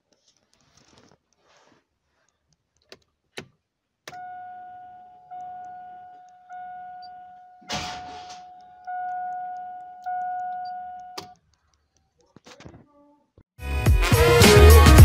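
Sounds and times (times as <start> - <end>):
small clicks: 0.0 - 4.2, 8.4 - 12.7
car warning chime dinging: 4.1 - 11.4.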